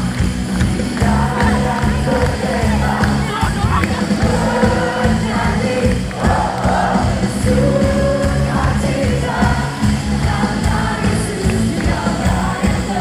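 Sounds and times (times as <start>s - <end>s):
live worship band music: 0.0s - 13.0s
people singing: 0.0s - 13.0s.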